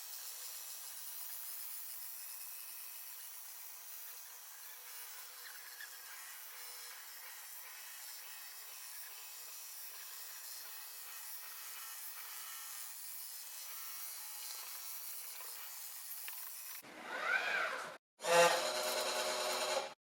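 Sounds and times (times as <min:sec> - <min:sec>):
robot vacuum rasping whir: 0:16.4 - 0:19.8.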